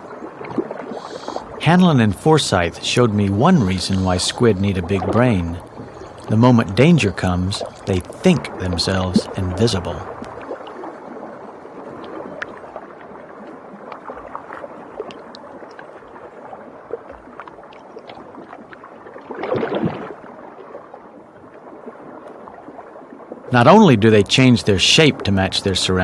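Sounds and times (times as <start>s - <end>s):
rush of water: 0.0s - 26.0s
underwater hiss of water: 0.9s - 1.6s.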